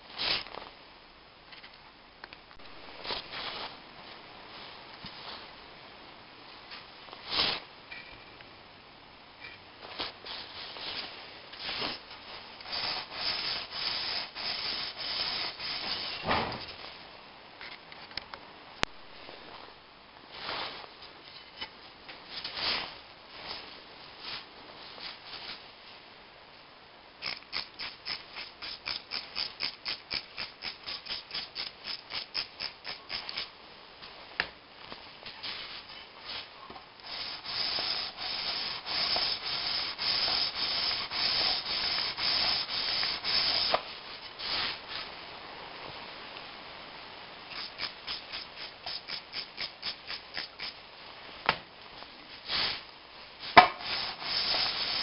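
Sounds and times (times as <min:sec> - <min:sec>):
hand sanding metal with abrasive: 0:12.6 - 0:16.2, 0:27.2 - 0:33.5, 0:37.0 - 0:43.8, 0:47.5 - 0:50.8, 0:53.5 - 0:55.0.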